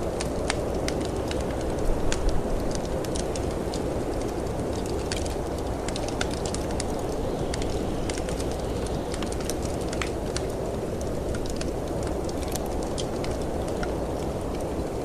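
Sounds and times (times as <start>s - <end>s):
low rush of wind: 0.0s - 15.0s
wood fire crackling and popping: 0.0s - 15.0s.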